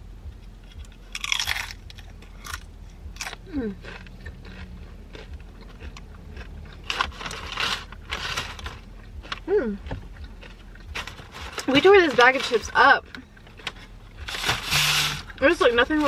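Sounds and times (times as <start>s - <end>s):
chips crunching and chewing: 0.7s - 9.5s, 10.1s - 12.7s.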